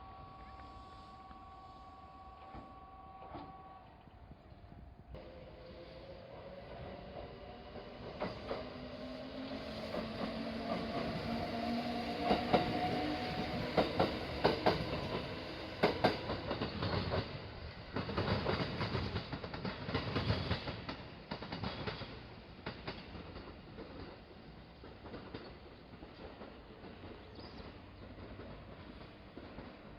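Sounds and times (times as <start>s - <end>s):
electric train passing: 0.0s - 29.9s
train wheels clacking over rail joints: 7.1s - 29.9s.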